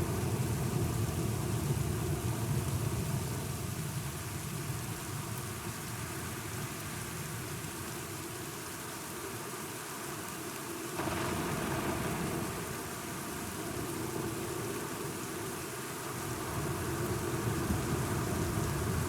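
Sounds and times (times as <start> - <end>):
steady rain: 0.0 - 19.0
low rumble of thunder: 11.0 - 15.6.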